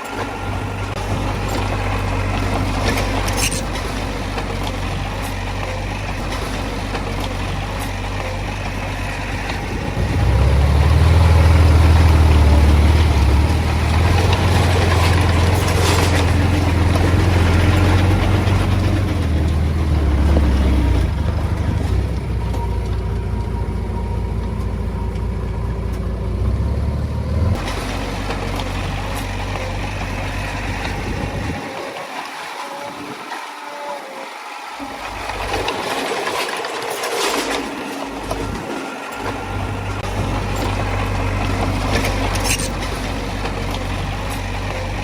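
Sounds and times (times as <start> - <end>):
heavy diesel engine running: 0.0 - 45.0
short metallic squeaks: 2.9 - 4.1, 41.9 - 43.1.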